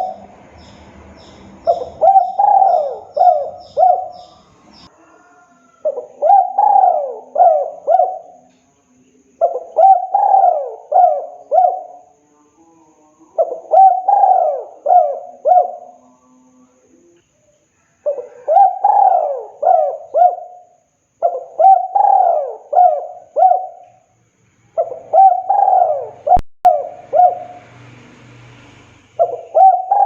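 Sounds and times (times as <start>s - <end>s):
dove cooing: 0.0s - 8.5s, 9.4s - 12.2s, 13.3s - 16.2s, 18.0s - 24.1s, 24.8s - 27.6s, 29.2s - 30.0s.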